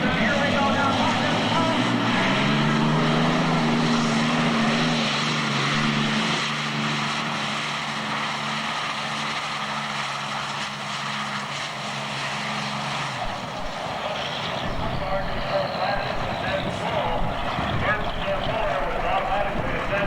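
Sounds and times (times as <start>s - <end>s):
pulling tractor engine roaring: 0.0s - 20.0s.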